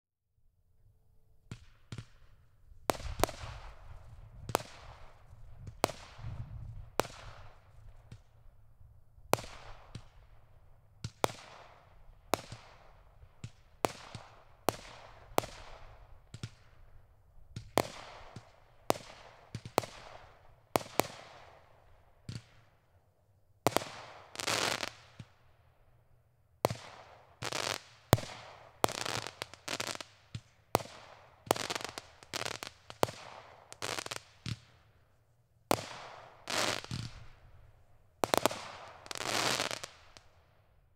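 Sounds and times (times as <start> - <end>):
firework crackling: 23.7 - 25.2, 26.7 - 30.2, 30.8 - 34.6, 35.8 - 37.4, 38.2 - 40.4
firework bangs: 38.2 - 40.3.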